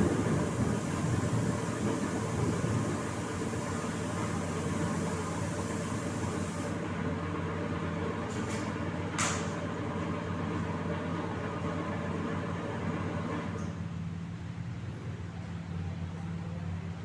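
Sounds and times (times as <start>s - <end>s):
paint spray gun hissing: 0.0s - 6.8s
short air hisses: 3.0s - 6.8s.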